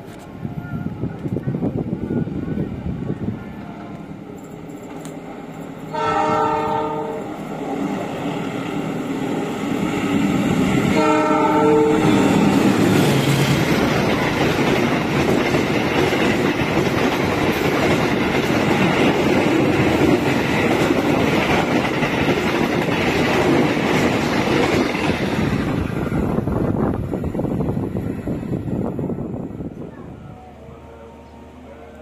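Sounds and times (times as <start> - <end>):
train carriages rushing and clattering: 1.1 - 29.8
diesel train horn: 5.9 - 7.4, 10.9 - 12.6.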